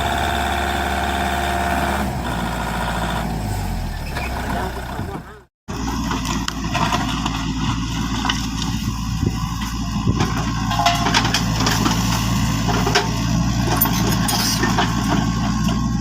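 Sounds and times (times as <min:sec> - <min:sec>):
truck engine idling: 0:00.0 - 0:05.5.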